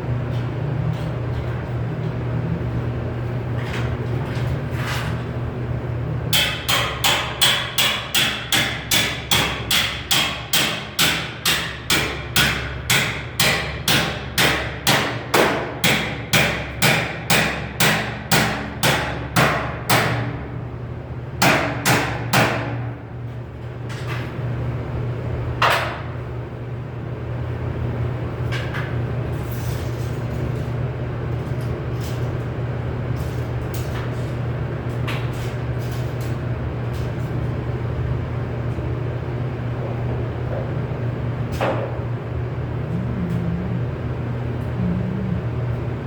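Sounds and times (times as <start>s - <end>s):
steady low hum: 0.0s - 46.0s
hammer striking sheet metal: 6.4s - 20.3s, 21.4s - 22.8s.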